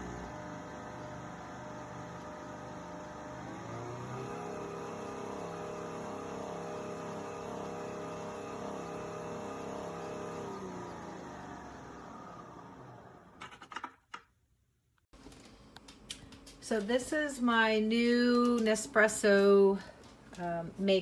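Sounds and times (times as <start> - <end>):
appliance motor whirring: 0.0 - 13.6.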